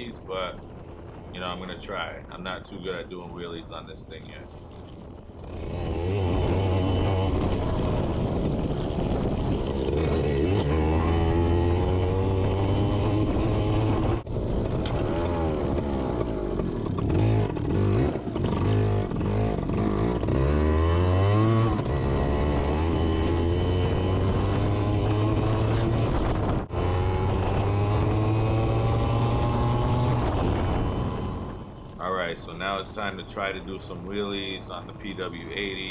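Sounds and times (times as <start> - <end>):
two-stroke motorbike engine revving: 5.3 - 32.0.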